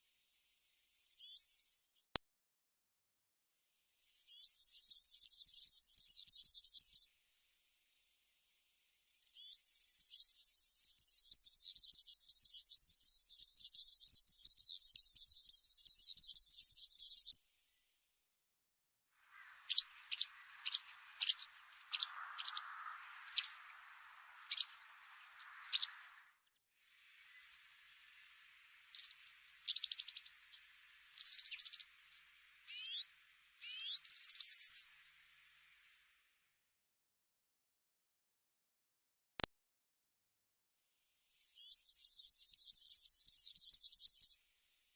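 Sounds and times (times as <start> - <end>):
sharp bird chirps: 4.0 - 7.1, 9.3 - 17.4, 19.3 - 26.5, 27.2 - 36.2, 41.3 - 44.4
twittering birdsong: 4.0 - 7.1, 9.2 - 17.4, 18.7 - 36.2, 41.3 - 44.4
high-pitched bird trill: 33.6 - 34.8.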